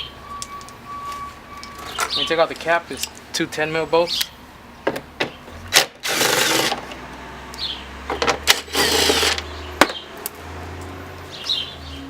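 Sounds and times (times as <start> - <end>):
power tool bursts: 5.7 - 6.9, 8.4 - 9.5.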